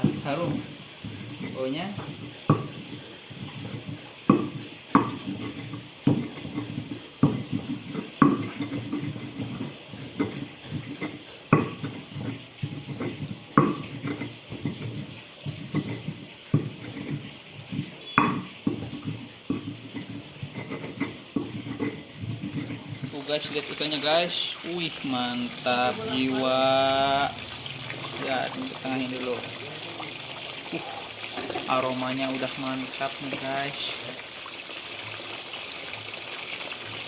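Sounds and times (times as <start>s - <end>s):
stone knocking on stone: 0.0s - 23.0s
stone pestle grinding: 0.0s - 23.5s.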